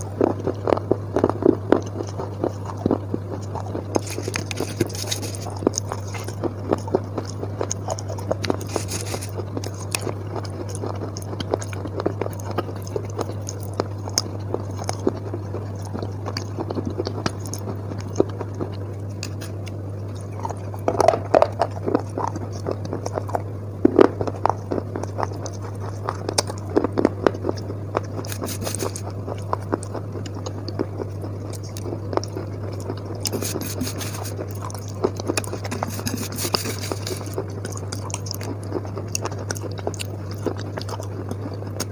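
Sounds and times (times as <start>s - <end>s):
chewing and crunching: 0.0s - 41.9s
low hum: 0.0s - 41.9s.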